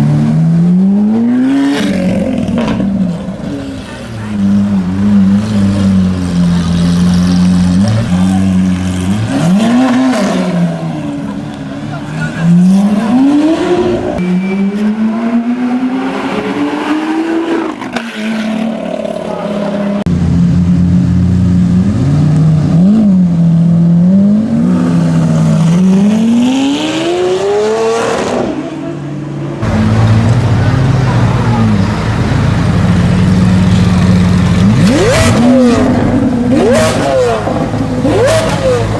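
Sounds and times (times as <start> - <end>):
engine revving: 3.8 - 11.1, 12.0 - 20.1, 21.9 - 28.6, 29.6 - 38.9
exhaust crackles: 29.6 - 38.9
sports car engine accelerating: 29.6 - 38.9.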